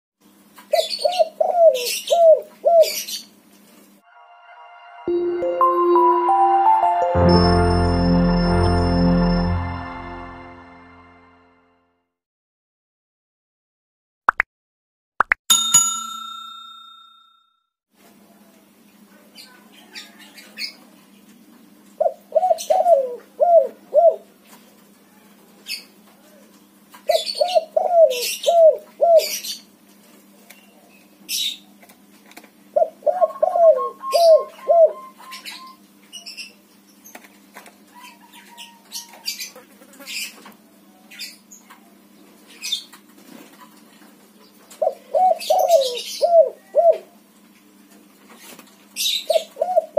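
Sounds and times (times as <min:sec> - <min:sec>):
dove cooing: 0:00.8 - 0:03.0, 0:22.0 - 0:24.2, 0:27.1 - 0:29.4, 0:32.8 - 0:35.7, 0:44.8 - 0:47.1, 0:49.3 - 0:49.9.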